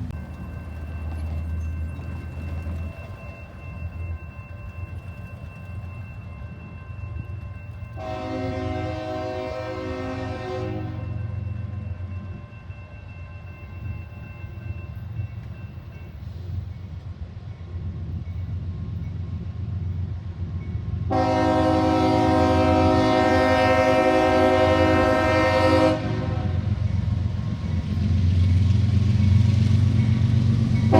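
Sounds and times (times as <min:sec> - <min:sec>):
train low rumble: 0:00.0 - 0:30.9
locomotive air horn blasts: 0:08.0 - 0:11.2, 0:21.1 - 0:26.8.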